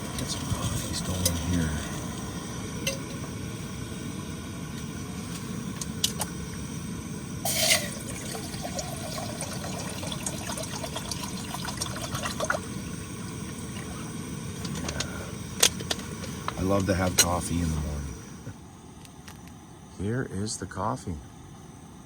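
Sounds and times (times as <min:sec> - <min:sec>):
gas flame rumbling: 0:00.0 - 0:22.0
water pouring into a pot: 0:07.5 - 0:14.0.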